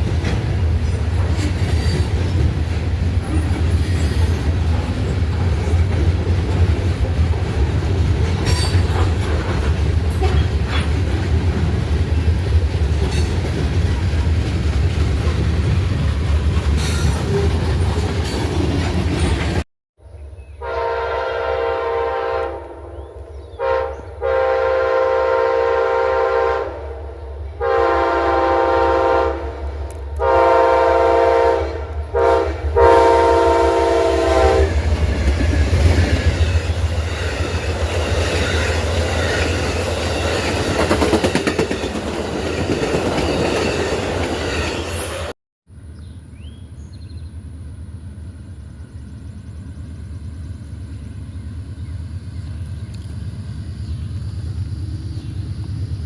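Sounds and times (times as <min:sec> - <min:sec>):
train wheels clattering on rails: 0:00.0 - 0:19.6, 0:34.4 - 0:45.3
diesel locomotive horn blasts: 0:20.6 - 0:35.0.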